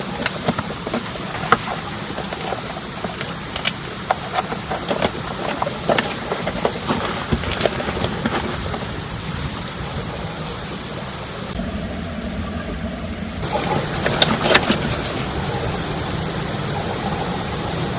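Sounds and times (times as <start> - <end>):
raindrops tapping close by: 0.0 - 10.9
heavy rain falling: 0.0 - 11.6, 13.4 - 17.9.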